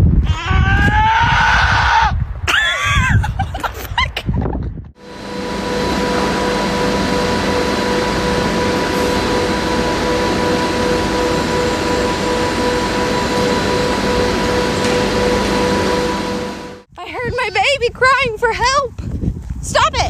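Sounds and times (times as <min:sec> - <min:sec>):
steady machine drone: 0:04.9 - 0:16.9.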